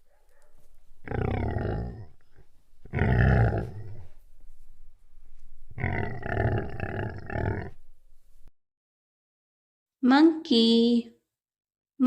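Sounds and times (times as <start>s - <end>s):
lion calling: 0.0s - 4.2s, 5.7s - 8.0s.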